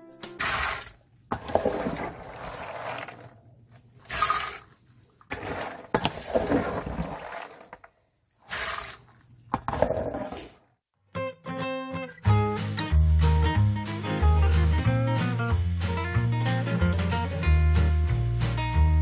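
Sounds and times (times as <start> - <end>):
water pouring and sloshing: 0.4 - 10.1.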